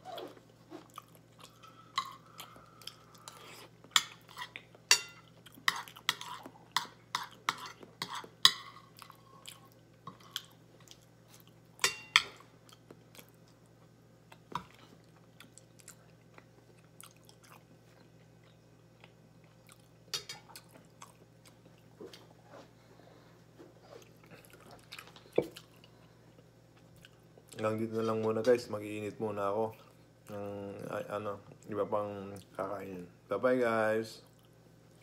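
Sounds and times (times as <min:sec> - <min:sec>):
person chewing: 0:00.1 - 0:11.9, 0:12.6 - 0:22.4, 0:23.9 - 0:27.6.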